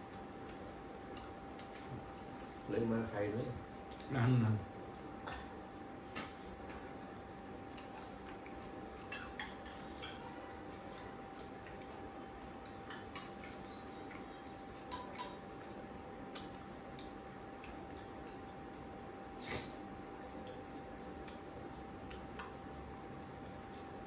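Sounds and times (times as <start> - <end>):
faint steady hum: 0.0 - 24.0
cutlery clinking on plates: 9.1 - 10.3.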